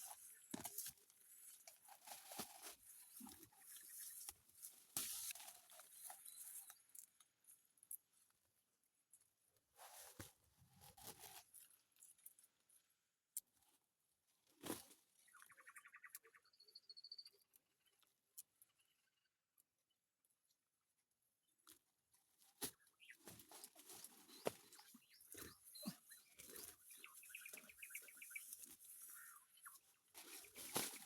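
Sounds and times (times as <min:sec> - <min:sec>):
faint rustles and clicks: 0:22.4 - 0:31.0.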